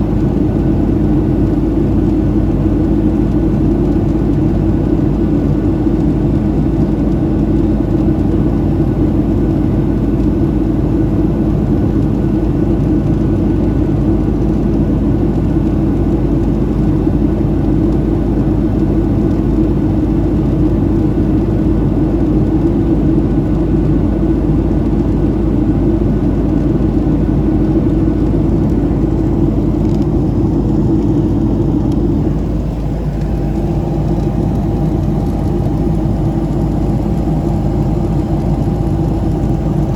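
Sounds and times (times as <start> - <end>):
airliner cabin jet engine drone: 0.0 - 39.9
rushing air: 28.3 - 39.9.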